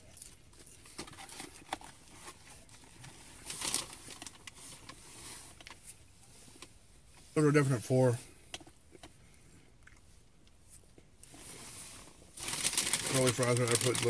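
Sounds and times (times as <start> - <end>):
quiet chewing of fries: 9.0 - 11.2.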